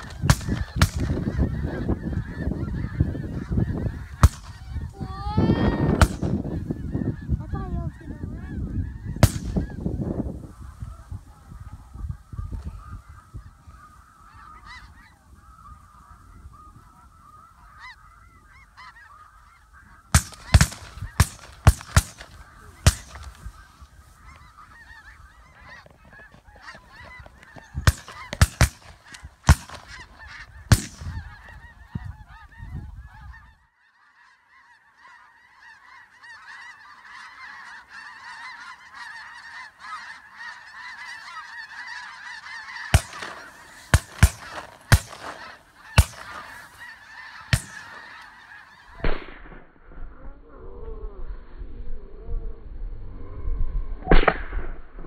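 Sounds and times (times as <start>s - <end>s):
shotgun shots: 0.0s - 1.2s, 4.2s - 4.6s, 6.0s - 6.4s, 9.2s - 9.6s, 20.1s - 23.4s, 27.8s - 30.0s, 30.7s - 31.2s, 42.9s - 46.6s, 47.5s - 48.1s, 49.0s - 49.7s
snow geese calling: 0.0s - 49.1s.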